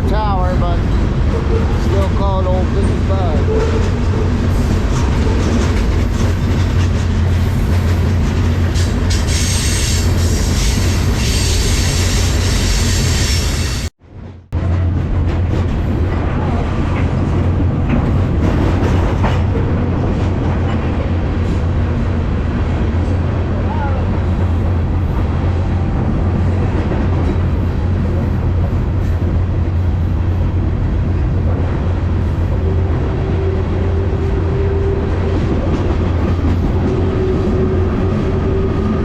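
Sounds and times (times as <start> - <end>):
train wheels rumbling: 0.0 - 39.0
train car body rattling: 0.1 - 9.4, 14.2 - 23.3.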